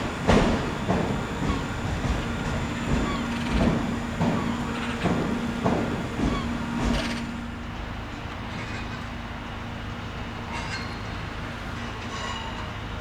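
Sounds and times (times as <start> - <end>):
steady hum: 0.0 - 7.8
train wheels knocking over rail joints: 0.0 - 8.0
steady rail rumble: 0.0 - 13.0.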